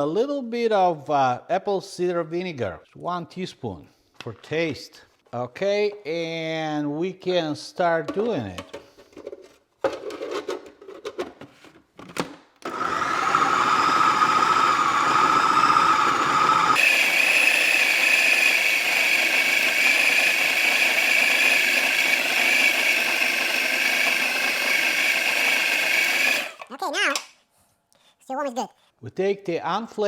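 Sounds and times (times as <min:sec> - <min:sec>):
food processor motor whining: 0:12.6 - 0:26.7.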